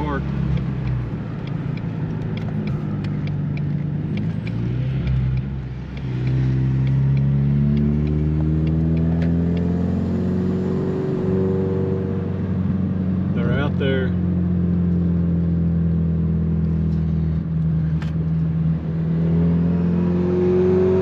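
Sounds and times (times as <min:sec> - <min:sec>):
car engine rumbling and accelerating: 0:00.0 - 0:21.0
light ticks: 0:00.5 - 0:09.7.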